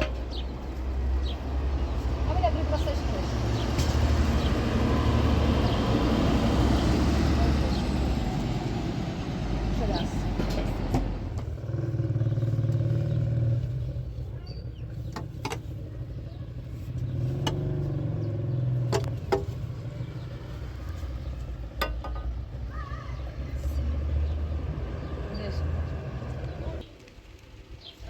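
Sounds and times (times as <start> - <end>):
vehicle engine humming: 0.0 - 27.9
sharp clicks and knocks: 15.1 - 15.7, 18.8 - 19.6.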